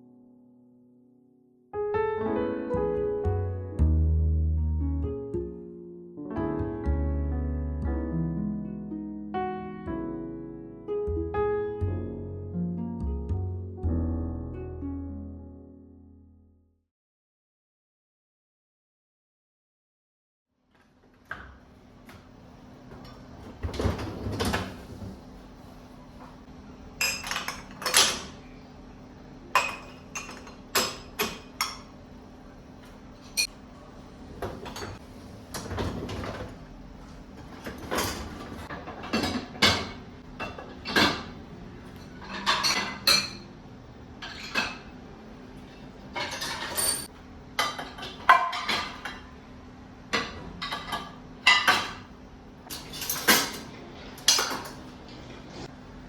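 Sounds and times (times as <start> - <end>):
dishes and utensils clinking: 27.0 - 28.4, 29.6 - 32.0, 37.6 - 43.6, 44.2 - 45.0, 45.6 - 49.3, 50.2 - 52.1, 52.7 - 55.7.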